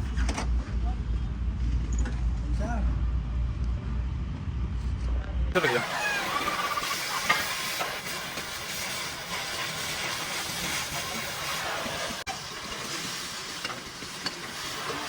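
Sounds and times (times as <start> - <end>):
air hissing under pressure: 5.6 - 15.0.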